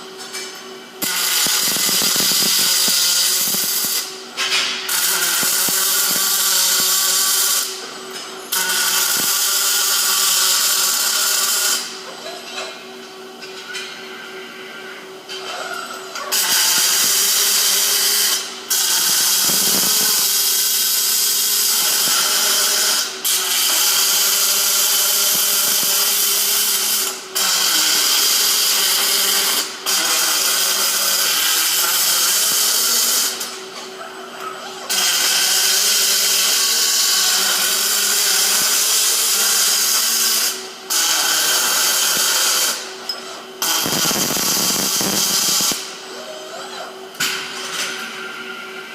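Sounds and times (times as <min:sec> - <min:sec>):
welding arc crackling: 0:01.0 - 0:07.8, 0:08.5 - 0:12.0, 0:16.3 - 0:33.5, 0:34.9 - 0:42.9, 0:43.6 - 0:46.0.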